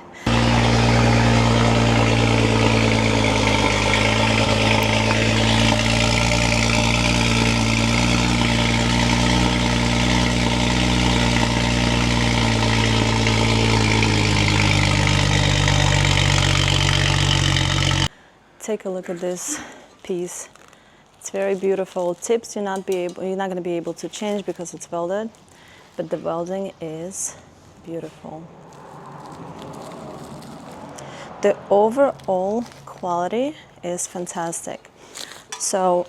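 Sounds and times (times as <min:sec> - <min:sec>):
car engine idling: 0:00.0 - 0:18.1.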